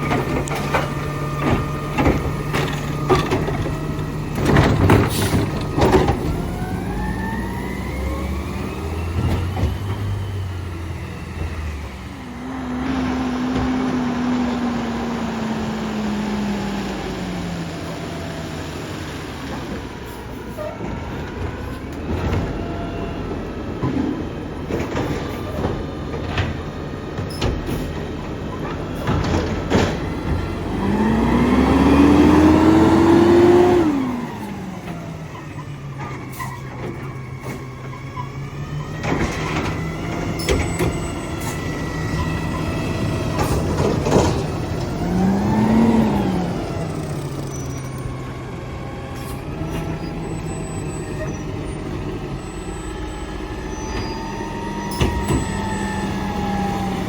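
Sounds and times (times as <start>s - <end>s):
knocks and clanks: 0.0s - 6.7s, 20.8s - 38.2s, 39.0s - 48.2s
diesel engine idling and revving: 0.0s - 57.0s.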